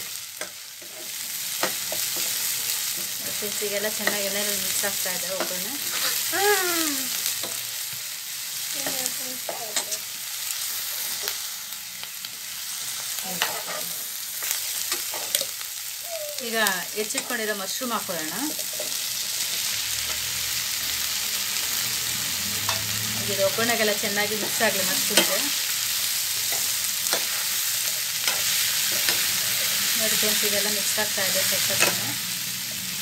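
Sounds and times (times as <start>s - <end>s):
food sizzling in hot oil: 0.0s - 33.0s
spatula scraping a pan: 0.4s - 3.2s, 5.3s - 6.3s, 13.3s - 15.5s.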